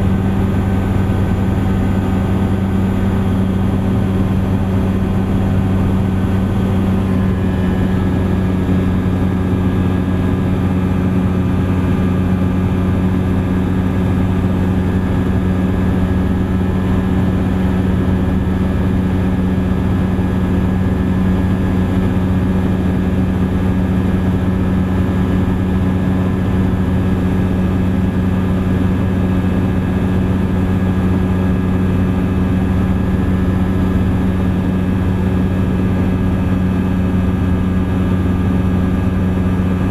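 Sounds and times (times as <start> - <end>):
ultralight aircraft engine droning: 0.0 - 39.9.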